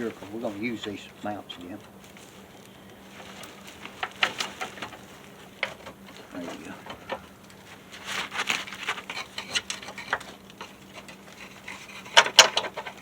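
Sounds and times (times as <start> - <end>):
hand tools clinking on metal: 8.6 - 13.0.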